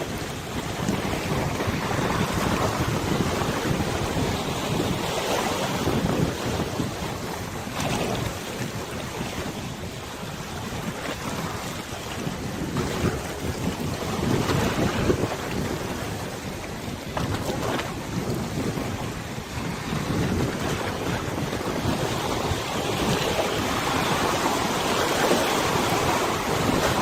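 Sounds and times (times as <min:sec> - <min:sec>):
wind buffeting microphone: 0:00.0 - 0:27.0
river water rushing: 0:21.3 - 0:27.0.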